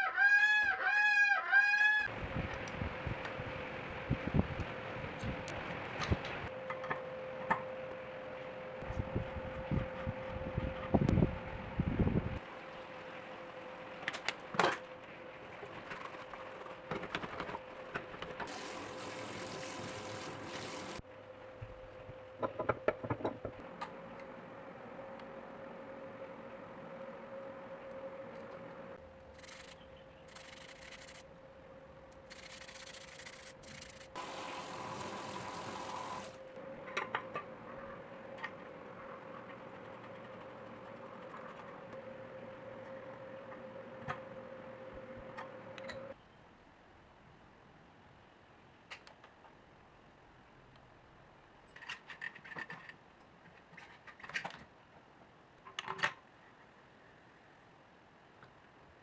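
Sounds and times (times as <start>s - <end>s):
sandpaper rubbing: 29.4s - 31.2s, 32.3s - 34.2s.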